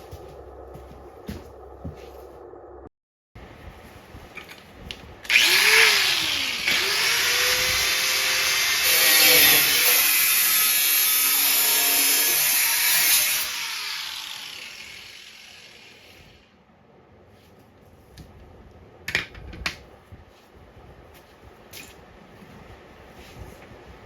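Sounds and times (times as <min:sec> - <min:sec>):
power tool cutting sheet steel: 0:05.3 - 0:16.4.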